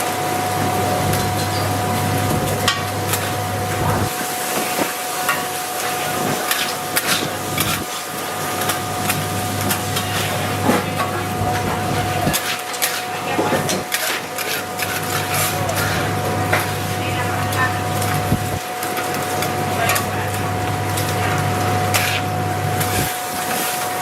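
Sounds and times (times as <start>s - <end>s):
steady mechanical hum: 0.0s - 24.0s
cooking utensils clattering: 1.0s - 18.2s.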